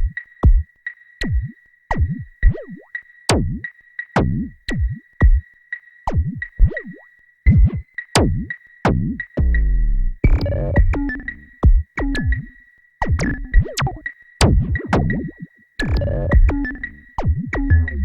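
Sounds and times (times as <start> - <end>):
drum machine hits dropping in pitch: 10.3 - 18.0
deep bass note: 15.9 - 16.8, 17.6 - 18.0.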